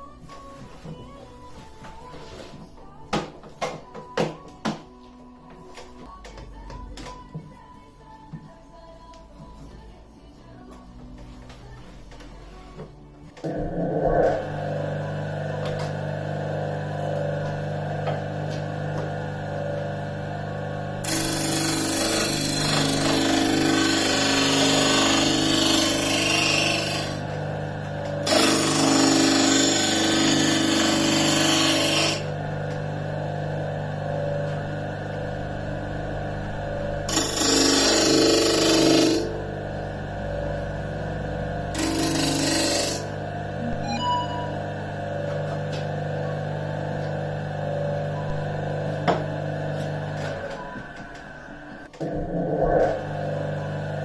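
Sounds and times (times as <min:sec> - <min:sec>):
disc sander motor hum: 0:13.8 - 0:51.8, 0:52.9 - 0:54.0
wood sanding: 0:21.0 - 0:32.4, 0:36.7 - 0:39.4, 0:41.7 - 0:43.1.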